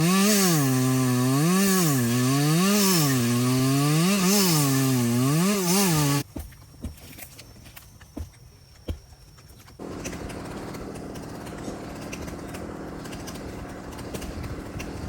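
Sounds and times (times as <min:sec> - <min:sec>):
chainsaw engine revving: 0:00.0 - 0:06.2, 0:09.8 - 0:15.0.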